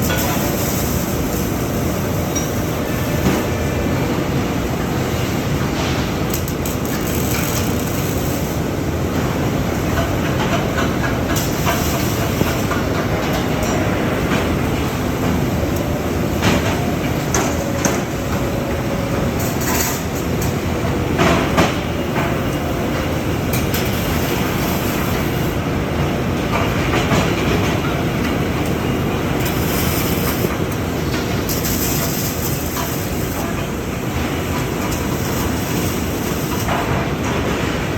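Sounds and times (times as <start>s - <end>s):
robotic welding line din: 5.8s - 8.7s, 29.2s - 33.6s.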